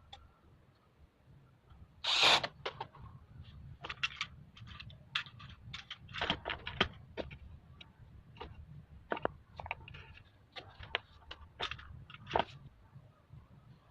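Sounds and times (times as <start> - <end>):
clicks and knocks of parts: 3.8 - 12.6.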